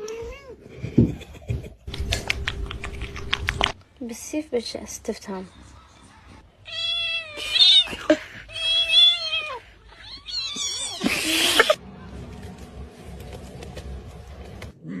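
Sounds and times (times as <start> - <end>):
cat yowling: 6.6 - 11.8.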